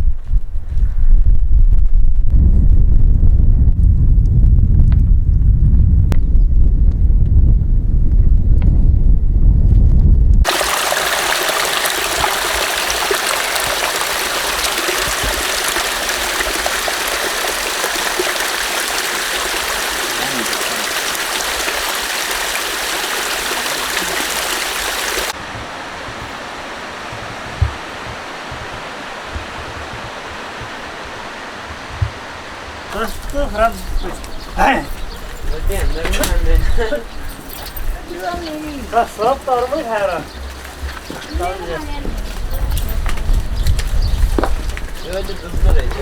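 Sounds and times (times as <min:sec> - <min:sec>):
flowing water rushing: 0:10.5 - 0:46.0.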